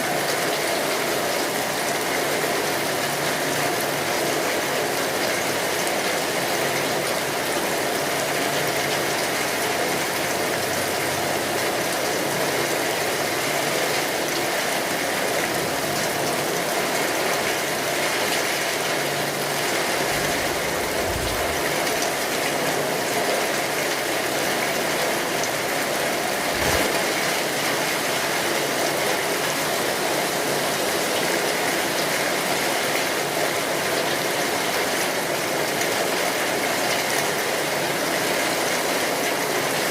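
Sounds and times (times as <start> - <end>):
rain pattering: 0.0 - 39.9
short low thuds: 20.3 - 21.8.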